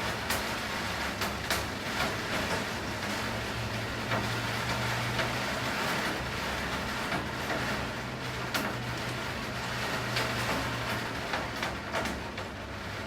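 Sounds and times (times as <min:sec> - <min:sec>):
steady rainfall: 0:00.0 - 0:13.0.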